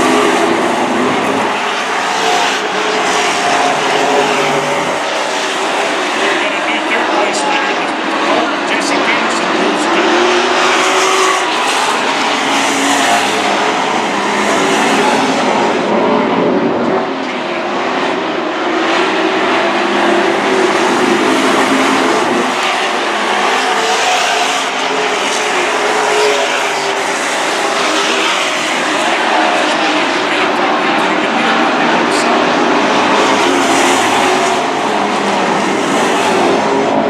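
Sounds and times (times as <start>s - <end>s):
racing truck engines: 0.0s - 37.0s.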